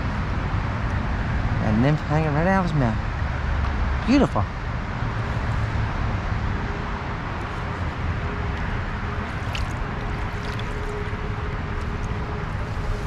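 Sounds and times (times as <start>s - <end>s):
stream water gurgling: 7.3s - 13.0s.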